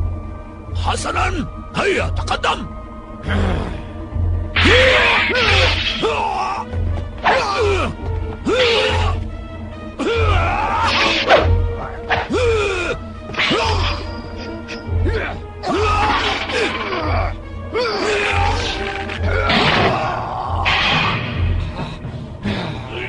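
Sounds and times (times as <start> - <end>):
dramatic background music: 0.0 - 23.0
fighters shouting and grunting: 4.6 - 9.3, 9.9 - 23.0.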